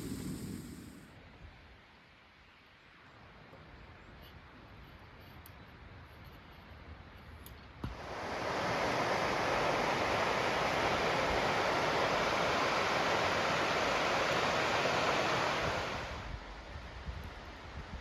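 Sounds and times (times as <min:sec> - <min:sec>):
burner ignition click: 0:00.0 - 0:01.0
gas burner hissing: 0:00.0 - 0:01.1, 0:07.8 - 0:16.3.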